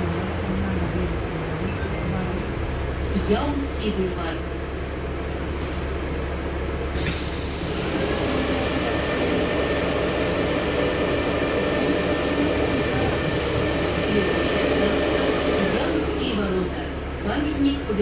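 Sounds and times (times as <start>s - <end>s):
bus engine idling: 0.0s - 18.0s
compressed air hiss: 7.0s - 9.0s, 11.8s - 14.2s.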